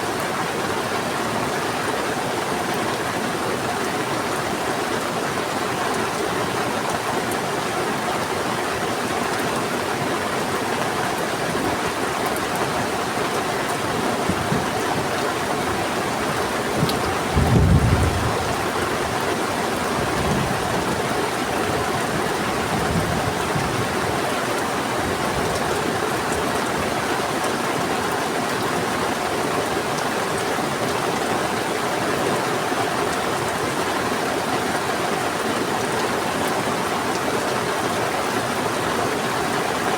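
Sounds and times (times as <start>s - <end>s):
heavy rain falling: 0.0s - 39.9s
rushing river water: 0.0s - 39.9s
thunder rumbling: 17.0s - 18.9s.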